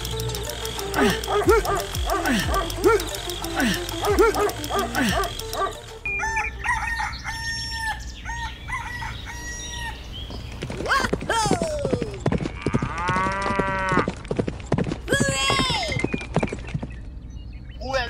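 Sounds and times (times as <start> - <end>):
rooster crowing: 4.3 - 10.1.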